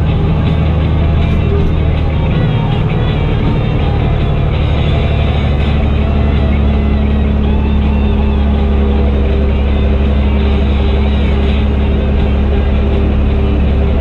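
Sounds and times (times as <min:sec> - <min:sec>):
higher steady tone: 0:00.0 - 0:14.0
tractor diesel engine droning: 0:00.0 - 0:14.0.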